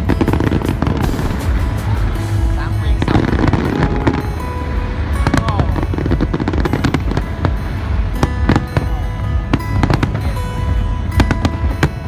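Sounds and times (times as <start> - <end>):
fireworks cracks and bangs: 0.0 - 4.4
deep rumble: 0.0 - 12.0
loud music playing: 0.0 - 12.0.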